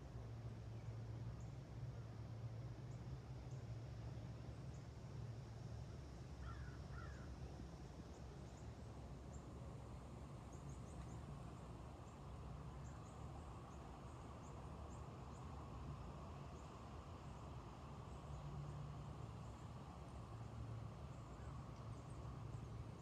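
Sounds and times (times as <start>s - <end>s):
crow-like calls: 6.4s - 7.3s.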